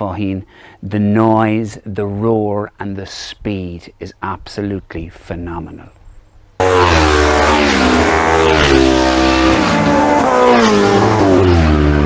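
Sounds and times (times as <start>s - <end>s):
racing motorcycles passing: 6.6s - 12.0s.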